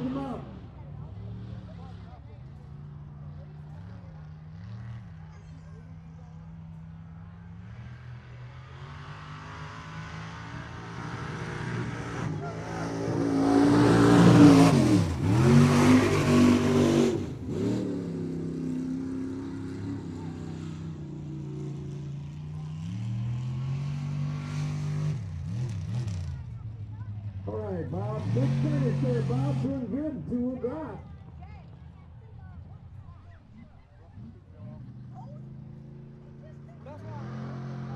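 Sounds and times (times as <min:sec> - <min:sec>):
truck engine revving hard: 0:07.6 - 0:26.6, 0:27.2 - 0:31.0, 0:34.1 - 0:37.9.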